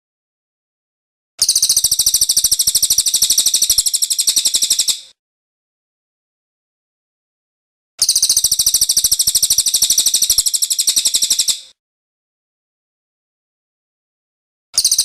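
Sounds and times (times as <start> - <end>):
bird singing rolling trill: 1.5 - 5.0.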